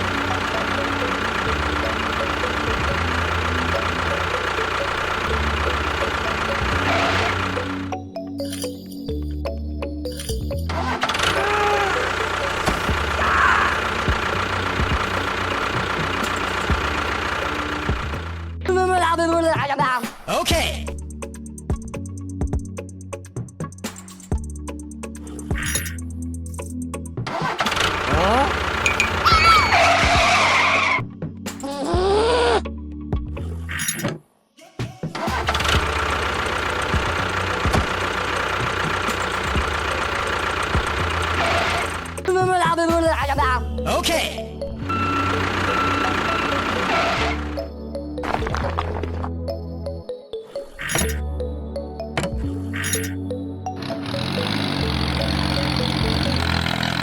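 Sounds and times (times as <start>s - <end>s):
small motor running: 0.0s - 7.9s, 10.7s - 18.6s, 27.4s - 30.2s, 35.2s - 42.3s, 44.9s - 47.7s, 53.8s - 57.0s
knocks and rattles: 13.8s - 18.6s, 25.5s - 30.3s, 35.2s - 42.4s.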